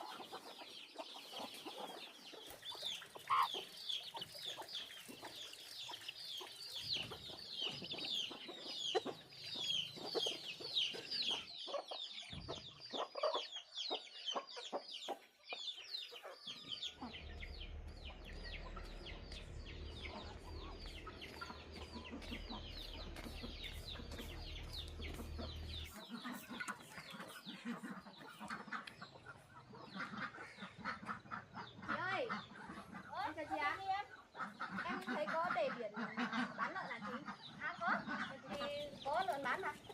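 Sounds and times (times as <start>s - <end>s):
chickens clucking and peeping: 0.0s - 39.9s
low steady rumble: 17.0s - 25.9s.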